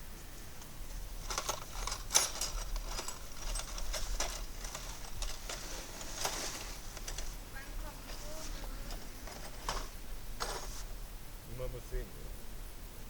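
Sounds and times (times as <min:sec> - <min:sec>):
light clicks and rustles: 0:00.6 - 0:11.0.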